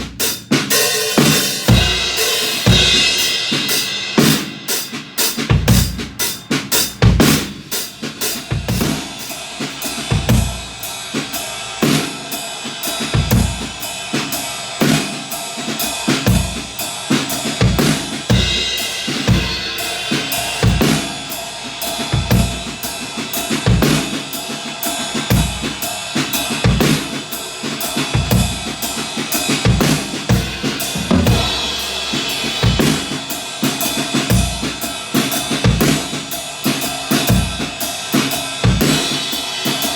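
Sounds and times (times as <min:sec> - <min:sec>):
ride cymbal or hi-hat pattern: 0:00.0 - 0:39.9
snare drum with ghost notes: 0:00.0 - 0:39.9
bass drum: 0:01.2 - 0:04.6, 0:17.4 - 0:21.3, 0:28.1 - 0:33.4.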